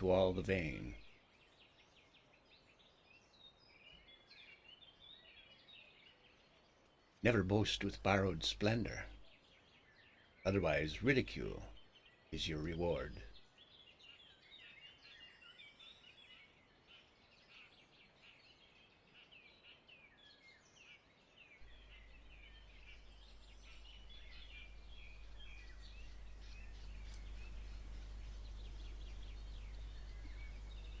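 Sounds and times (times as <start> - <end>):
small birds chirping: 0.0 - 31.0
steady low hum: 21.6 - 31.0.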